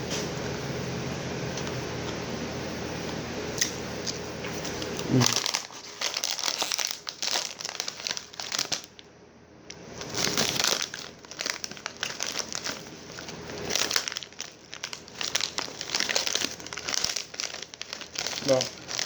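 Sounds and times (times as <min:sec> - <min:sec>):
snack bag crinkling: 0:03.6 - 0:09.1, 0:09.7 - 0:19.0.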